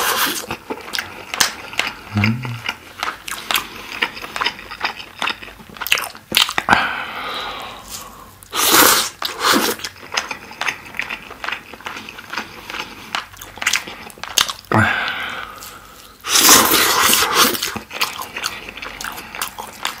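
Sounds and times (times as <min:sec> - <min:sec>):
wet chewing with lip smacks: 0:00.1 - 0:06.7, 0:09.2 - 0:14.7, 0:16.3 - 0:20.0.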